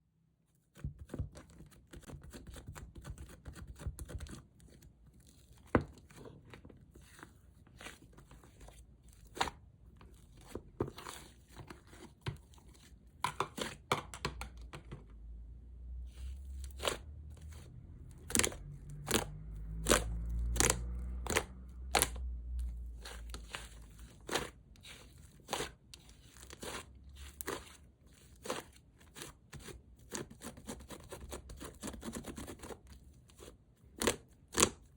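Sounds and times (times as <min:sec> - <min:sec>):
slime squished by hand: 0:16.1 - 0:30.2.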